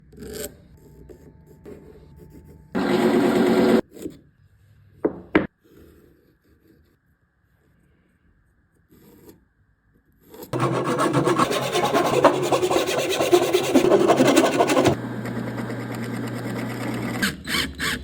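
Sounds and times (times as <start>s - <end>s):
wood rasping against cutter: 10.6s - 15.0s.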